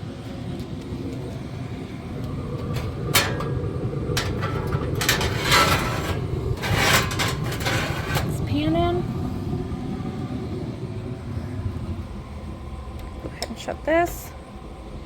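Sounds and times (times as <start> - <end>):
steady low rumble: 0.0 - 15.0
metal parts clanking: 4.2 - 8.3.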